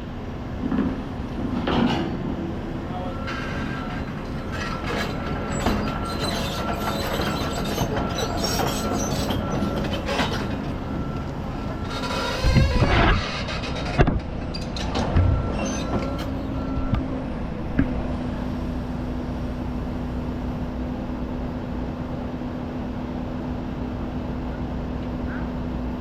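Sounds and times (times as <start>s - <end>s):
diesel engine hum: 0.0s - 26.0s
metal clanking and squealing: 3.0s - 17.0s.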